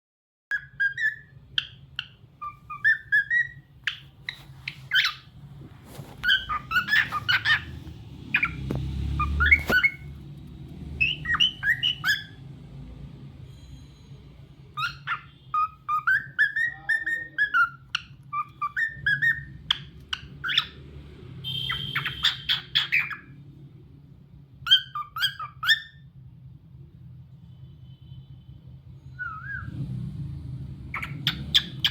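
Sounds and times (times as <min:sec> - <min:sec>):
cockatiel whistling and chirping: 0:00.5 - 0:10.2, 0:11.0 - 0:12.4, 0:14.7 - 0:20.8, 0:21.4 - 0:23.4, 0:24.6 - 0:26.2, 0:29.1 - 0:29.8, 0:30.9 - 0:31.9.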